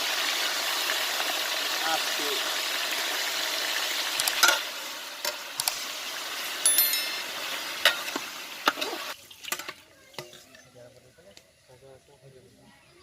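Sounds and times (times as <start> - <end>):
chicken sizzling in hot oil: 0.0 - 10.4.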